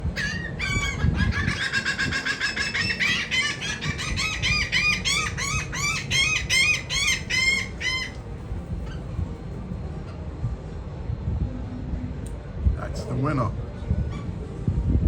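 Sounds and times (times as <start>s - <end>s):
gulls squawking: 0.1s - 8.2s.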